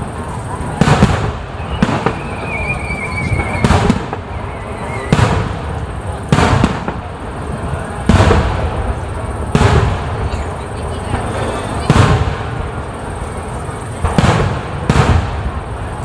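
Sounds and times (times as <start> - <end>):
high firework whistle: 0.0 - 8.5
fireworks booming with echo: 0.0 - 16.0.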